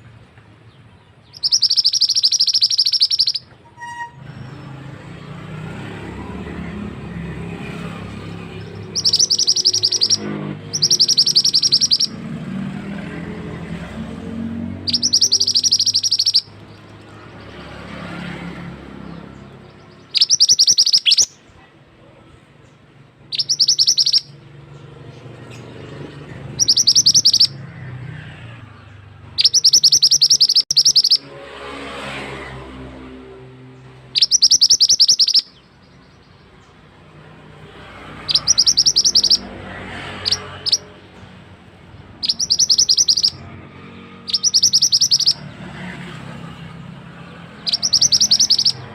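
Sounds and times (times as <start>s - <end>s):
bird singing fast high notes: 1.3s - 21.4s, 23.2s - 24.7s, 26.4s - 31.4s, 34.0s - 36.4s, 38.0s - 41.0s, 42.0s - 45.7s, 47.3s - 48.9s.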